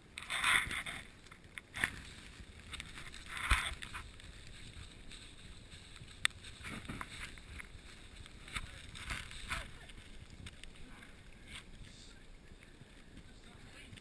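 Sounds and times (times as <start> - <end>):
bike tyre and frame noise: 0.0 - 14.0.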